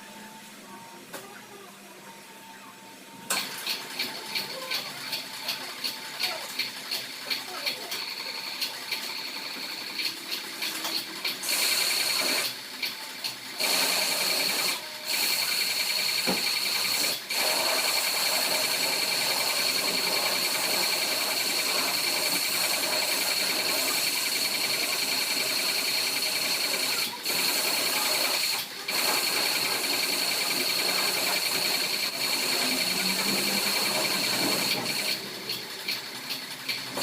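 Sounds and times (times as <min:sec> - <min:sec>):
pressure washer whine and spray: 0:13.6 - 0:35.3.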